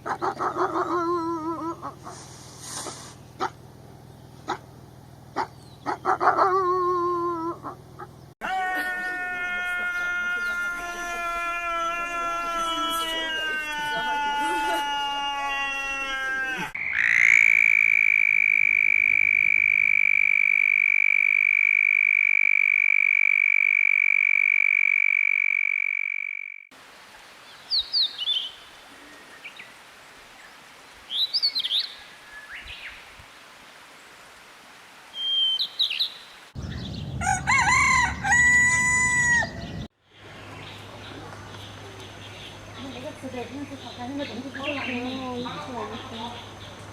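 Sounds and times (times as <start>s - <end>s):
rooster crowing: 8.4s - 16.8s, 37.2s - 39.8s.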